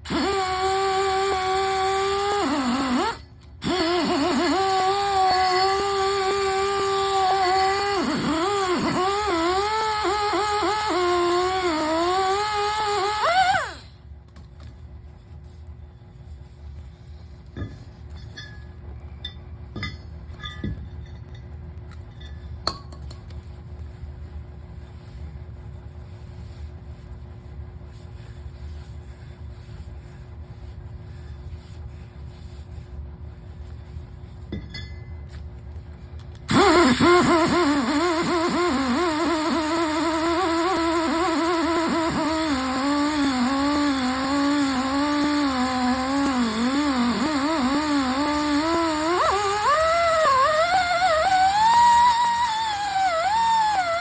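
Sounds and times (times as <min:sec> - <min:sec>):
mini skid steer running: 0:00.0 - 0:13.9, 0:36.5 - 0:54.0.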